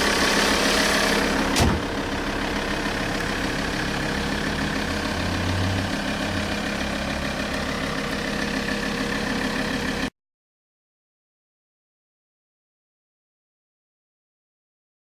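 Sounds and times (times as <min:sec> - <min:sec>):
diesel engine idling: 0:00.0 - 0:10.1.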